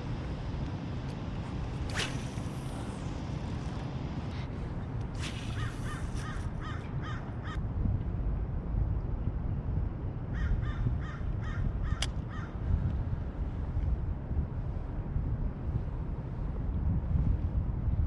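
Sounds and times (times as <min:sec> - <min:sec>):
bird calling: 0:05.4 - 0:07.3.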